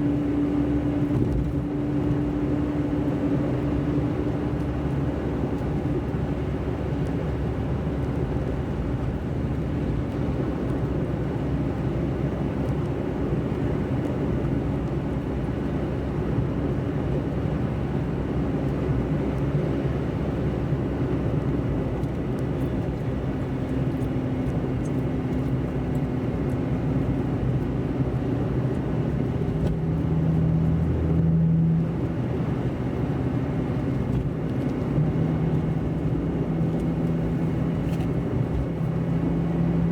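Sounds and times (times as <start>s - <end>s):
car engine hum: 0.0s - 39.9s
road rumble: 0.0s - 39.9s.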